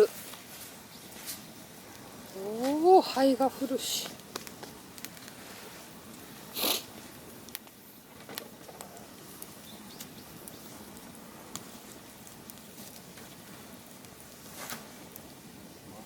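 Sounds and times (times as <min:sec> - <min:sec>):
bonfire crackling and popping: 0:00.0 - 0:16.0
short hissing burst: 0:06.5 - 0:07.0.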